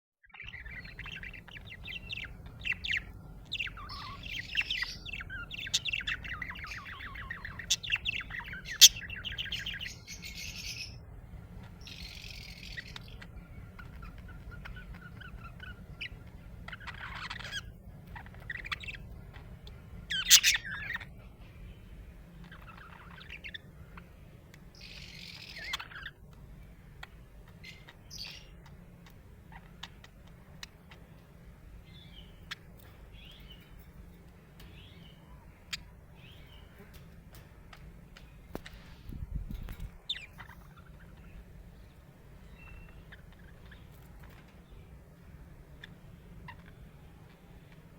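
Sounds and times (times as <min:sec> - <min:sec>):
sharp loud bird calls: 0:00.3 - 0:11.0, 0:11.6 - 0:21.2
budgerigars chirping: 0:00.3 - 0:47.9.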